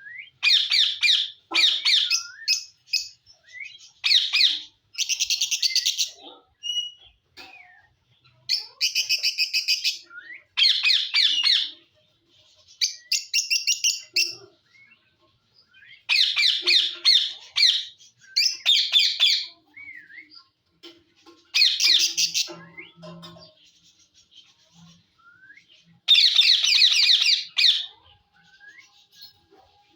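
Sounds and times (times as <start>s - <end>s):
parakeet squawking: 0.4s - 2.3s, 16.1s - 19.6s, 26.1s - 28.0s.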